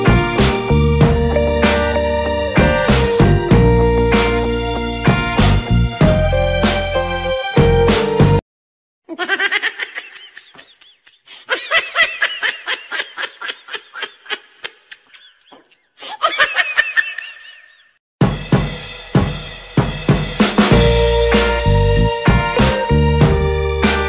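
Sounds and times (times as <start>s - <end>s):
music: 0.0s - 8.4s, 18.2s - 24.0s
giggling laughter: 9.1s - 17.9s.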